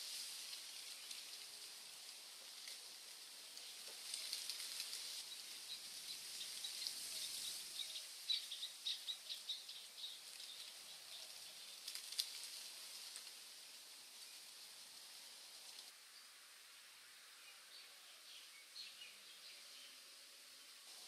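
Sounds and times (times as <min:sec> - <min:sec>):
soft steady hiss: 0:00.0 - 0:21.0
birds chirping: 0:05.2 - 0:11.8.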